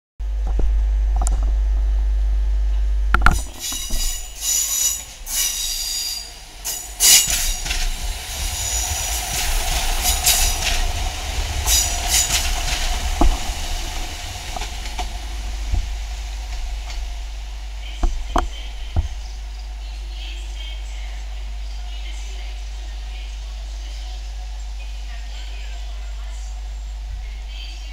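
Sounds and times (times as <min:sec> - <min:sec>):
train drone: 0:00.2 - 0:27.9
wheels clicking over rail joints: 0:03.2 - 0:19.3
train wheels squealing: 0:03.6 - 0:07.9.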